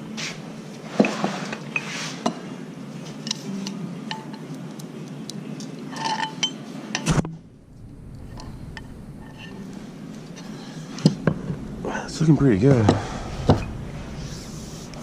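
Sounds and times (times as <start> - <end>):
metal parts clinking: 5.9 - 6.6.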